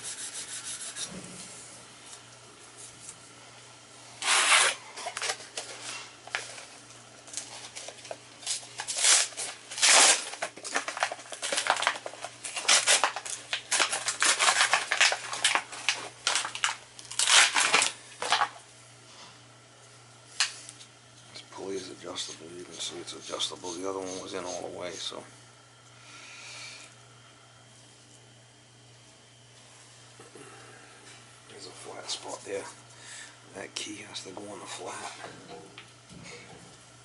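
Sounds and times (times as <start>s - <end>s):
scraping on metal shaft: 22.2s - 25.2s.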